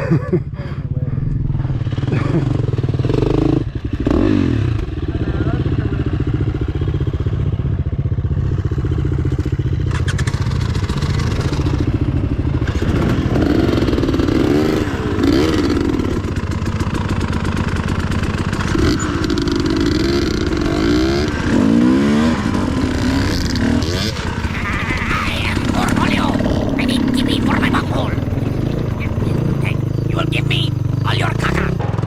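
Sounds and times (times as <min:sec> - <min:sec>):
dirt bike engine revving: 0:12.6 - 0:32.0.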